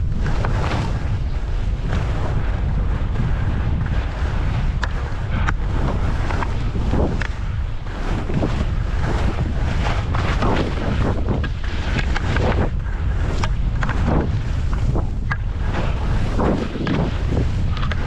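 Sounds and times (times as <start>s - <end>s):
skis swishing through snow: 0.0s - 18.0s
wind buffeting microphone: 0.0s - 18.0s.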